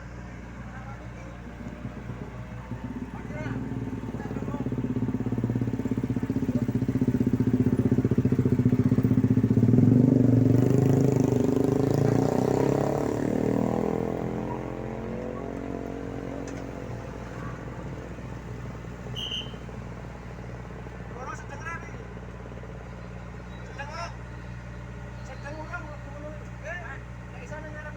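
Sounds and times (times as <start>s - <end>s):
vehicle engine passing by: 0.0s - 22.0s
low engine hum: 0.0s - 27.9s.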